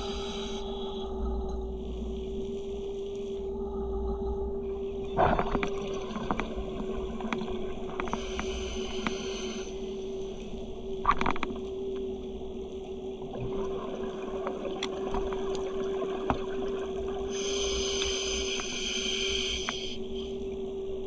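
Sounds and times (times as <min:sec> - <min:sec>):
low rumble of water: 0:00.0 - 0:21.0
underwater steady hum: 0:00.0 - 0:21.0
sharp clicks underwater: 0:07.2 - 0:09.6, 0:11.0 - 0:12.1
high hiss: 0:08.1 - 0:10.1, 0:17.3 - 0:20.2.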